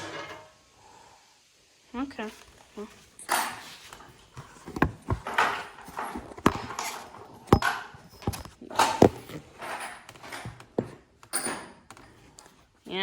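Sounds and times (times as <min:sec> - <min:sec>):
scraping and rustling: 0:02.2 - 0:12.8
hard objects knocking and clattering: 0:03.2 - 0:12.5.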